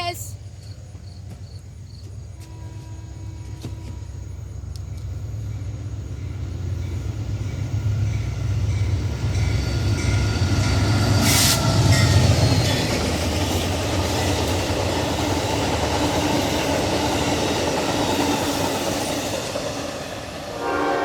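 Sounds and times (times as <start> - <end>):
diesel locomotive engine rumble: 0.0 - 21.0
brief hiss: 11.2 - 11.7.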